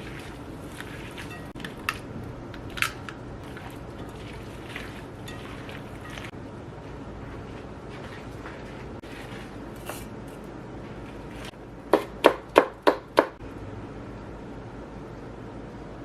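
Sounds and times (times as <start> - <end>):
knife chopping on cutting board: 11.9 - 13.4.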